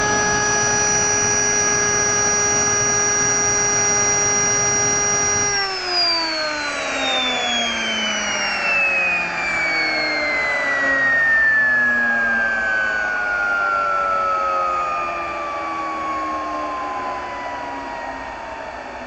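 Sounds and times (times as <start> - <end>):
jet engine spooling down: 0.0 - 19.0.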